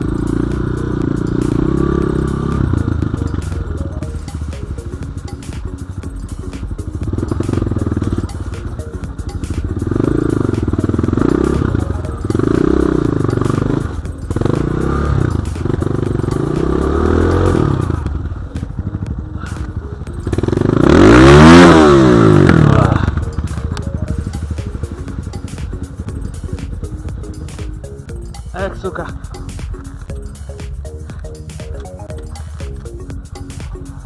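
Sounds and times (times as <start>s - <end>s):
dirt bike engine revving: 0.0s - 5.3s, 7.0s - 8.5s, 9.7s - 28.0s.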